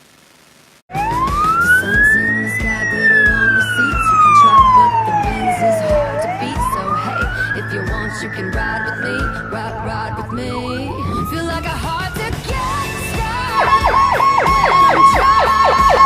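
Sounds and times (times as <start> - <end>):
music with a steady beat: 0.9 - 9.5, 11.8 - 16.0
fire engine siren wailing: 0.9 - 16.0.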